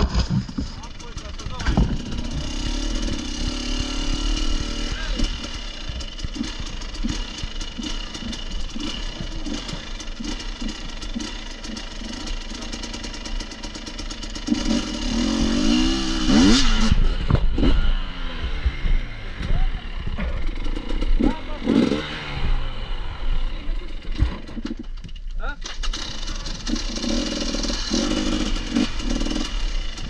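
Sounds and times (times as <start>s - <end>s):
knocks and rattles: 0.0s - 3.2s, 24.0s - 26.8s
dirt bike engine revving: 0.0s - 24.9s, 25.6s - 30.0s.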